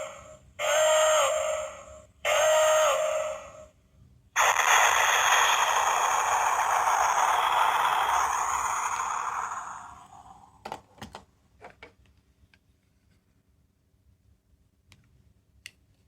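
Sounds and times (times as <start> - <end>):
toy playing noisy sound effect: 0.0 - 3.7, 4.4 - 10.4.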